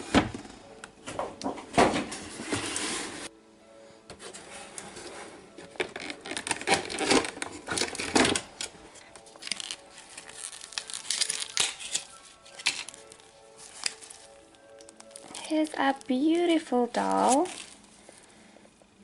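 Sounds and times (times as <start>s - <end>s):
packaging tearing and crinkling: 5.7s - 18.2s.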